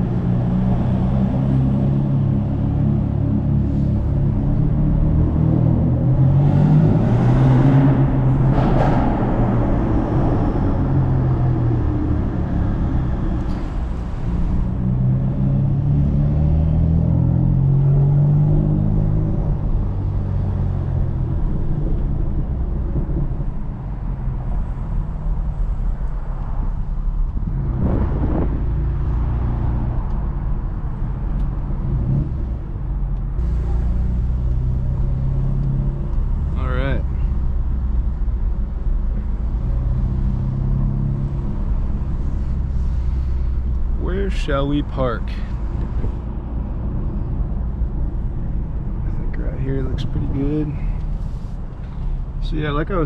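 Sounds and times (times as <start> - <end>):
car exhaust revving: 27.3 - 32.7.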